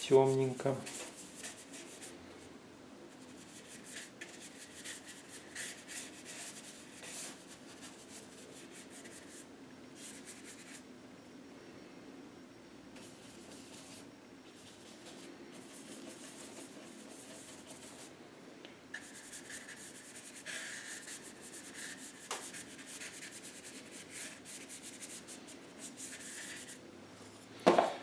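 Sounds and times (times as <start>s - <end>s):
paintbrush scrubbing on canvas: 3.2s - 9.4s, 13.1s - 18.1s, 18.9s - 26.8s.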